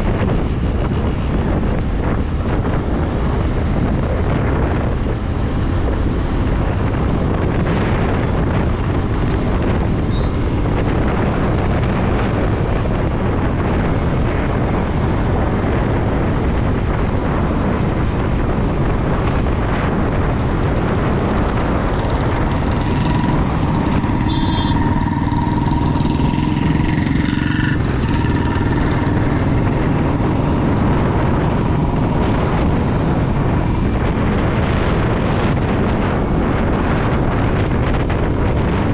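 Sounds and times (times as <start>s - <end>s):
motorcycle engine: 0.0s - 16.4s, 18.8s - 38.9s
wind and road noise: 0.0s - 38.9s
high whine: 20.5s - 34.4s
steady high tone: 22.0s - 29.4s.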